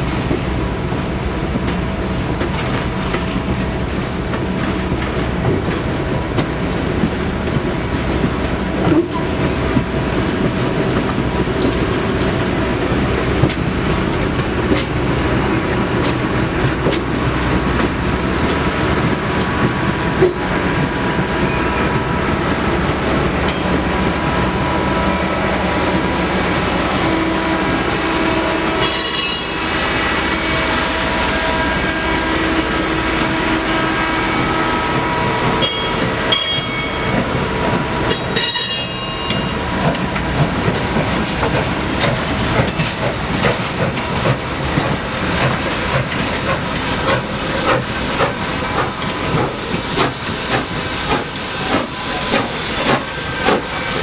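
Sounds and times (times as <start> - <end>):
train wheels clattering: 27.8 - 30.2, 34.9 - 54.0
hiss of steam: 39.5 - 54.0.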